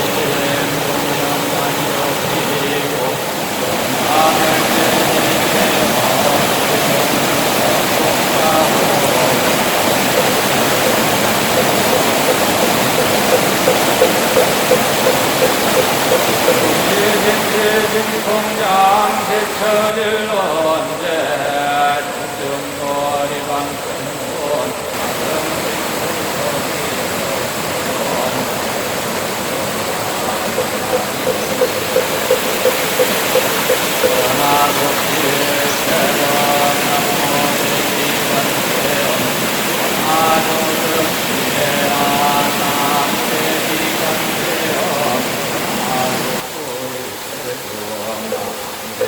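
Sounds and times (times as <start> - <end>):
stream rushing over rocks: 0.0 - 49.0
regular pitched tapping: 9.7 - 17.2, 29.7 - 35.0
faint regular pulse: 29.4 - 34.8.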